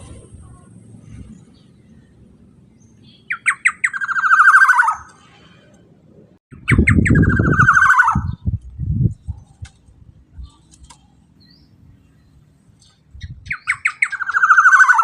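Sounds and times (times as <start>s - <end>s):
low rumble: 0.0s - 3.0s
bird harsh buzzy calls: 2.8s - 5.7s, 6.6s - 8.5s, 12.9s - 15.0s.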